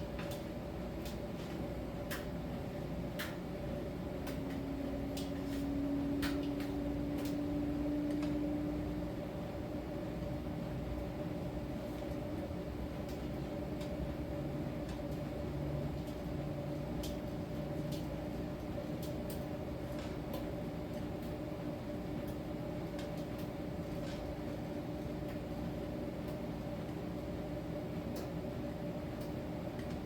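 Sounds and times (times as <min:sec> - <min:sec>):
tumble dryer humming: 0:00.0 - 0:17.2.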